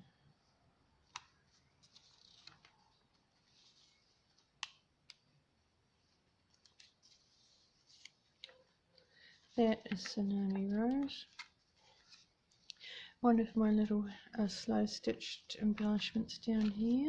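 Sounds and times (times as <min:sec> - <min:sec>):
paper pages rustling: 0:01.0 - 0:05.2, 0:06.1 - 0:12.7, 0:15.7 - 0:17.0.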